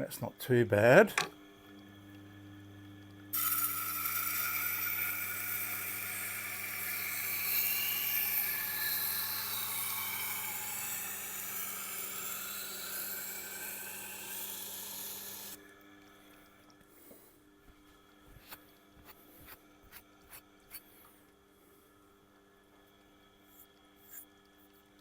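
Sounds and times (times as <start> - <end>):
knife grinding on wet wheel: 3.3 - 15.6
grinder motor hum: 3.3 - 15.7.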